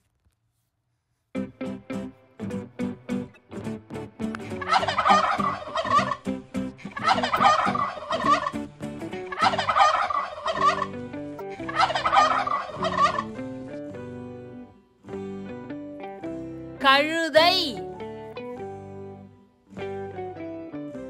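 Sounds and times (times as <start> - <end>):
turkey gobbling: 4.6 - 6.2, 6.9 - 8.6, 9.2 - 13.4.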